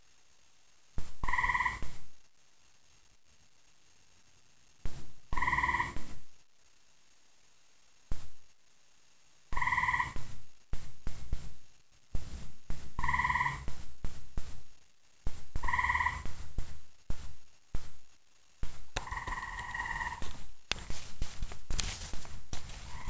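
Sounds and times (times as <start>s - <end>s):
tree frog trilling: 1.2s - 1.9s, 5.3s - 6.0s, 9.5s - 10.2s, 13.0s - 13.7s, 15.6s - 16.3s, 19.0s - 20.3s.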